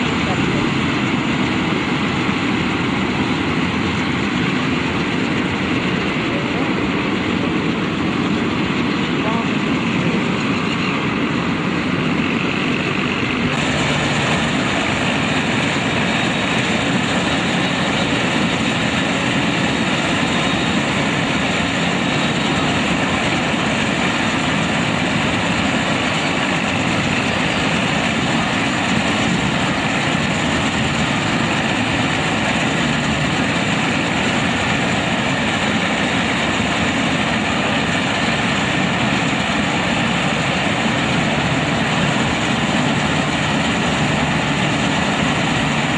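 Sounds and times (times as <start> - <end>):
combine harvester running: 0.0 - 45.9.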